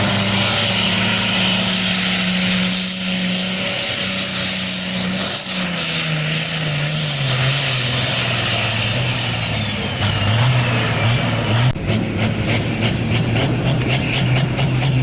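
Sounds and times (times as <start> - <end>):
diesel tractor engine: 0.0 - 15.0.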